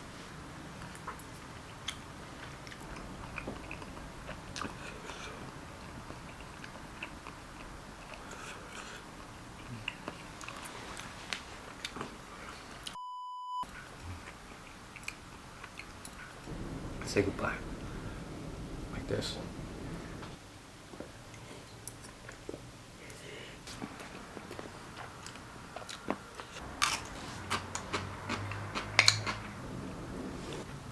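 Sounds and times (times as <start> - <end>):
soft chewing: 0.7 - 13.0, 13.6 - 16.5, 21.3 - 29.6
short electronic beep: 13.0 - 13.7
wet mouth clicks: 25.9 - 29.5.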